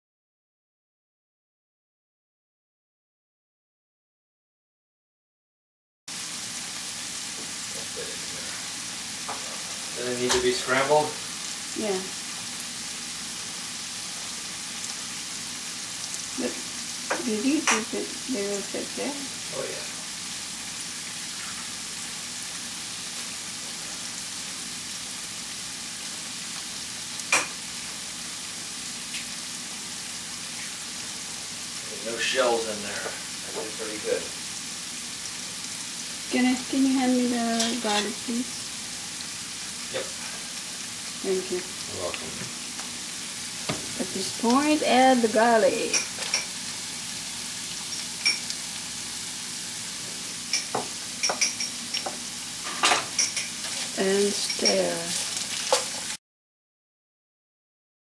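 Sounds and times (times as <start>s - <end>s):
food sizzling in a pan: 6.1s - 56.2s
tap against pan: 9.2s - 9.4s, 17.1s - 17.9s, 27.3s - 27.6s, 43.6s - 44.0s, 50.5s - 53.5s.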